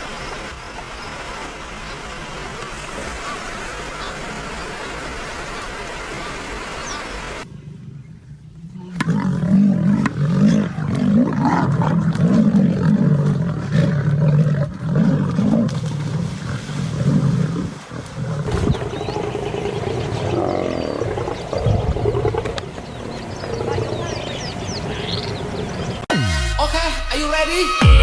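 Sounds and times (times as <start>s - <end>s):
lion growling: 7.4s - 26.1s.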